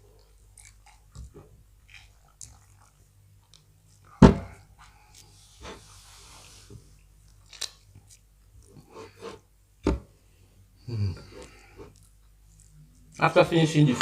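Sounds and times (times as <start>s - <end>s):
chewing: 0.2s - 4.2s, 11.1s - 13.2s.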